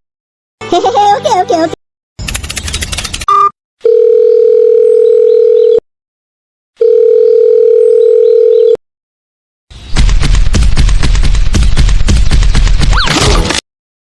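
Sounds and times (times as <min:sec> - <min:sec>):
telephone ringing tone beeps: 0:03.3 - 0:05.8, 0:06.8 - 0:08.8.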